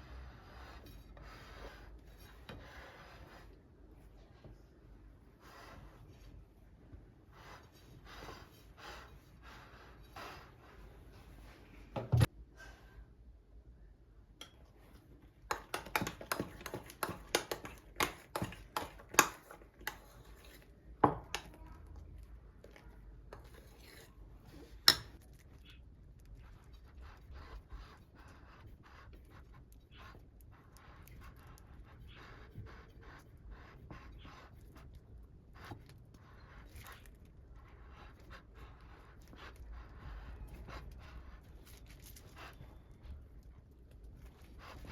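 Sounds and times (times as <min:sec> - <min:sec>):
soft scraping and tapping: 0:00.4 - 0:04.8, 0:14.4 - 0:44.9.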